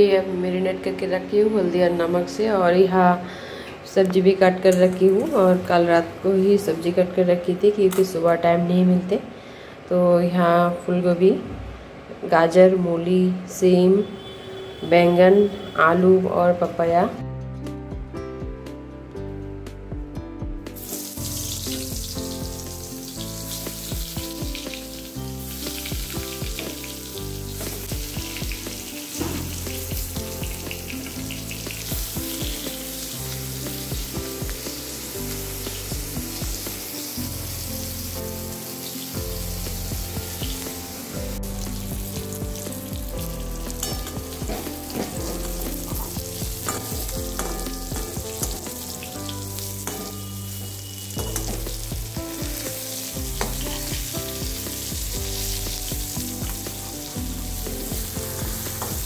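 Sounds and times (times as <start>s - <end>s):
background music: 15.9s - 59.0s
eggplant frying in hot oil: 20.8s - 59.0s.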